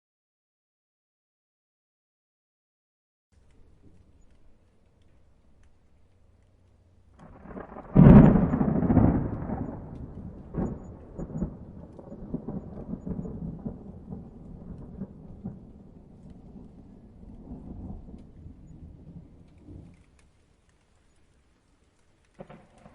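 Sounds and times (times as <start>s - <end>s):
thunder rumbling: 3.4s - 20.5s, 22.2s - 22.9s
thunder crack: 7.2s - 20.1s, 22.4s - 22.9s.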